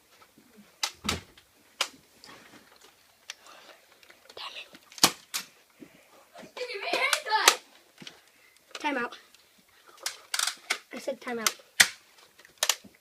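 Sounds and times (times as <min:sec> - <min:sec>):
toy blaster clicks and knocks: 0:10.0 - 0:12.8.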